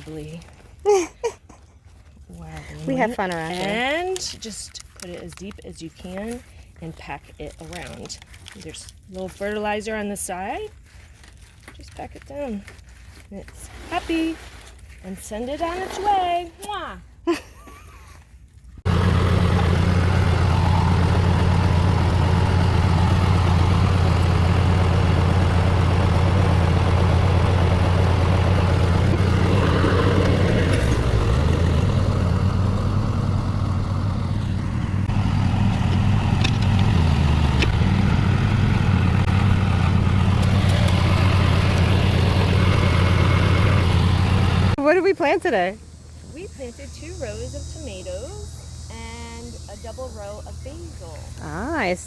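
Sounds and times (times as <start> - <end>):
engine humming steadily: 18.8 - 52.0.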